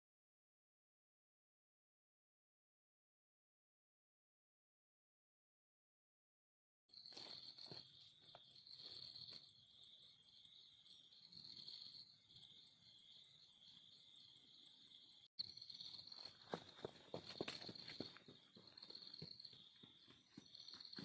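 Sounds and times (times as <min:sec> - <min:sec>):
insects chirring: 0:06.9 - 0:21.0.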